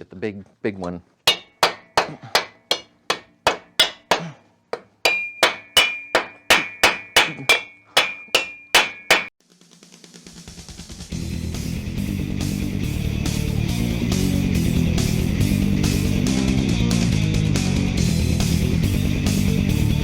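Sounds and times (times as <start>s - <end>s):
hammer blows ringing on metal: 1.3s - 4.4s, 5.0s - 9.4s.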